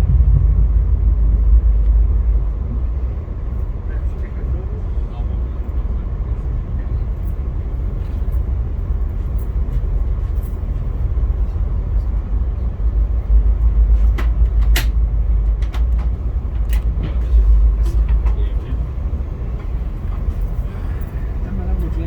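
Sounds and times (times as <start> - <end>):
passenger train rumbling: 0.0 - 22.0
sharp clicks and knocks: 14.0 - 18.5.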